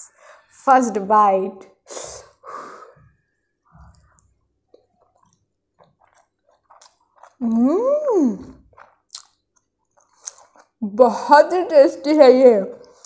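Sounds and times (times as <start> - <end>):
person chewing: 2.9 - 10.9.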